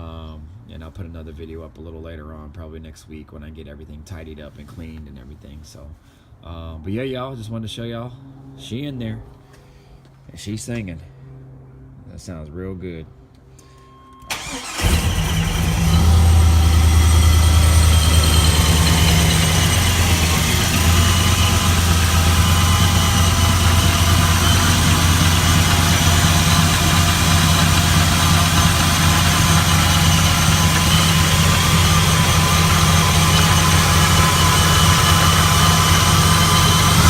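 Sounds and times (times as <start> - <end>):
supercharger whine: 14.1 - 37.0
car engine starting and idling: 14.3 - 37.0.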